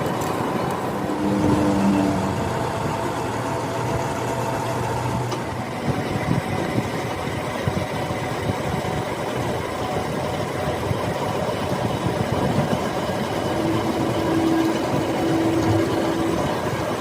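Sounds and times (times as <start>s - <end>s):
machine running: 0.0s - 17.0s
steady hum: 0.0s - 17.0s.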